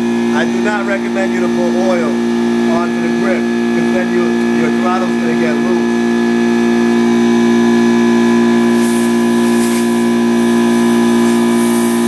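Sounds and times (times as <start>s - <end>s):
air compressor humming: 0.0s - 12.0s
compressed air hissing: 8.6s - 12.0s.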